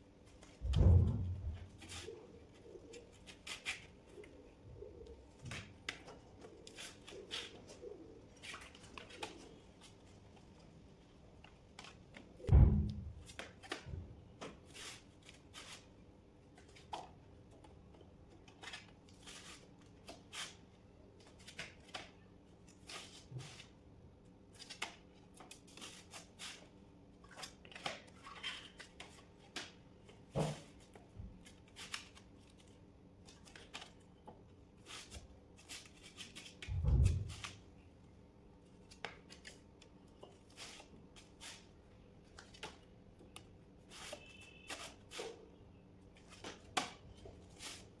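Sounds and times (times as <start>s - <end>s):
heavy thump: 12.5s - 13.2s.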